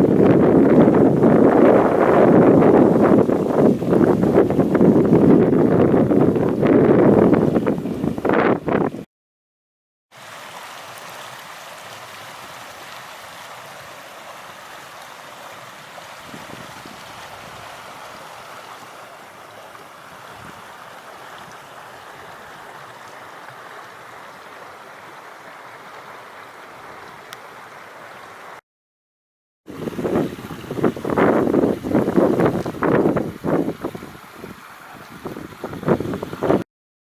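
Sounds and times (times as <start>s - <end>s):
stream water rushing: 0.0s - 8.9s, 10.1s - 28.6s, 29.7s - 36.6s.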